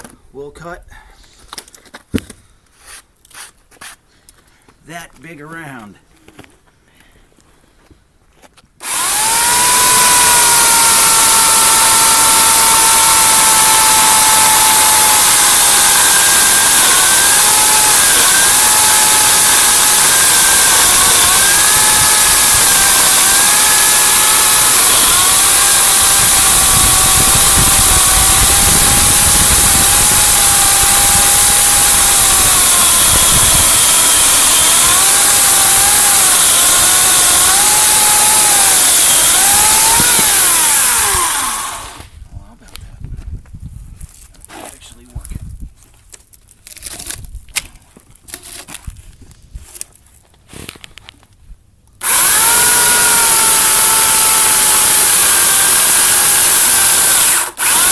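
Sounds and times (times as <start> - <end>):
electric chainsaw motor whine: 8.8 - 42.1, 52.0 - 57.9.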